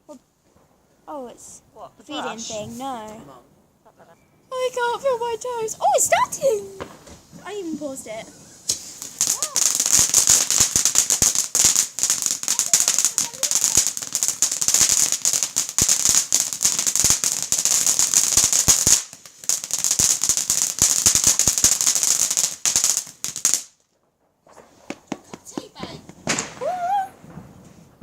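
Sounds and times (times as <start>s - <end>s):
firework crackling and hissing: 4.5s - 28.0s.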